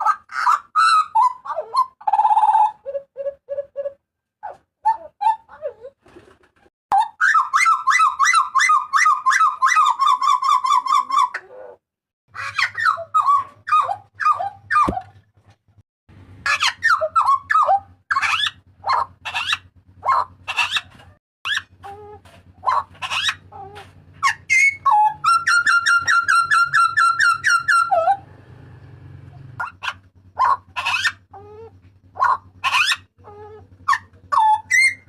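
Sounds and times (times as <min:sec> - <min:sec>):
butcherbird calling: 0:06.9 - 0:15.1, 0:16.4 - 0:28.2, 0:29.4 - 0:35.0.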